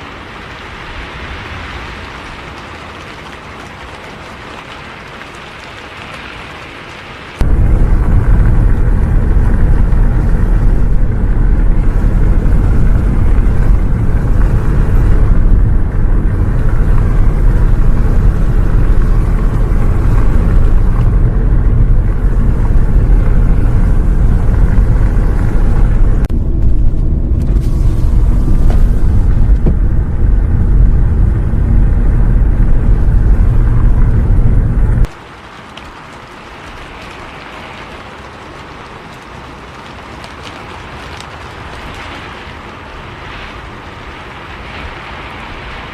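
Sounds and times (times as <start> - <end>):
rain: 0.0 - 45.9
bus engine rumble: 7.4 - 35.1.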